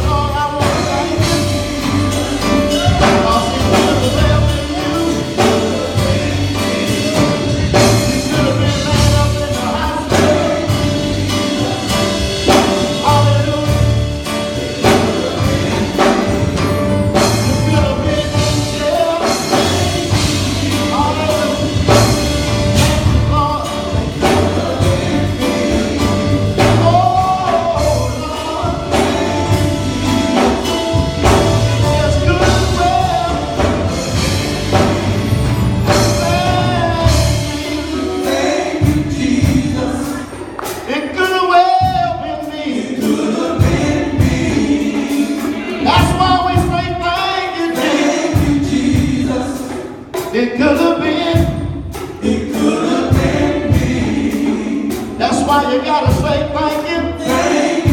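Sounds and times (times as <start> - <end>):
person singing: 0.0 - 22.1
drum kit and bass beat: 0.0 - 57.9.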